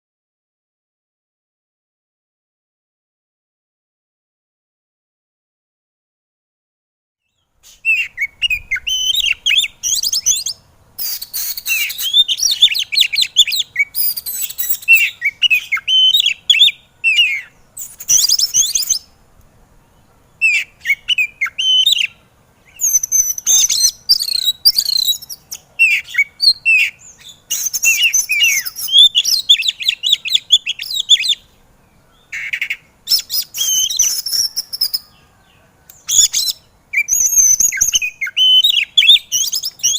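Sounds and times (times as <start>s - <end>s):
bird warbling and chirping: 7.3s - 19.2s, 19.8s - 39.9s.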